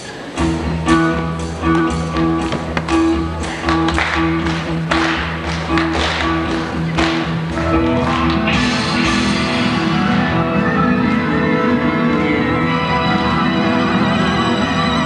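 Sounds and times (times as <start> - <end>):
live band playing: 0.2 - 15.0
drum strikes: 1.6 - 7.6.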